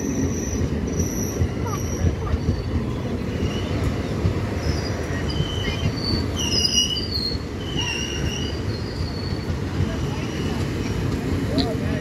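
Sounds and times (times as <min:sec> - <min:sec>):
train wheels rumbling on rails: 0:00.0 - 0:12.0
high-pitched wheel squeals: 0:04.6 - 0:09.6.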